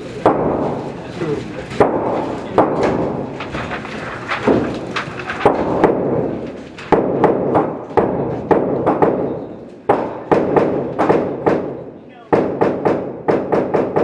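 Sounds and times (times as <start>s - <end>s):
gunshots with echo: 9.9s - 14.0s.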